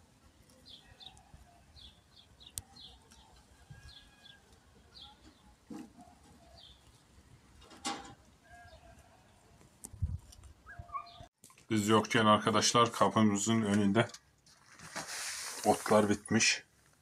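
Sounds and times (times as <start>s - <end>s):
small birds chirping: 0.2s - 7.6s, 8.5s - 11.3s.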